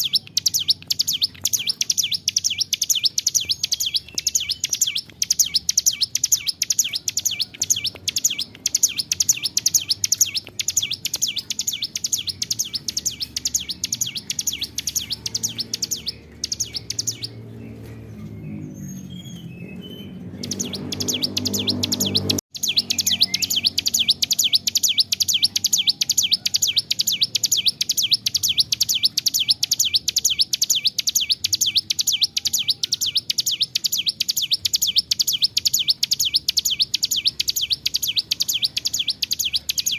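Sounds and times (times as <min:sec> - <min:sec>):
bird singing rapid high chirps: 0:00.0 - 0:39.9.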